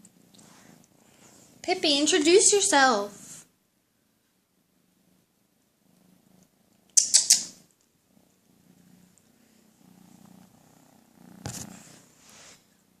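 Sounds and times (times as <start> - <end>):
kitten purring: 5.0 - 13.0.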